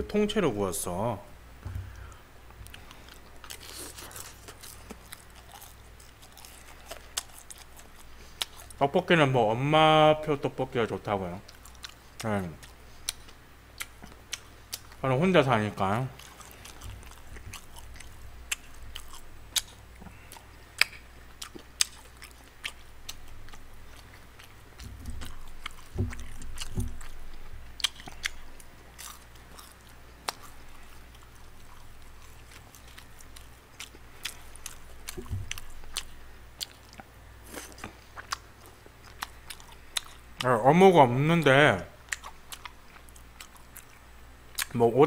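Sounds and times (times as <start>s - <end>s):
chewing and biting: 2.6s - 8.8s, 11.5s - 15.0s, 16.1s - 40.5s, 42.0s - 44.0s.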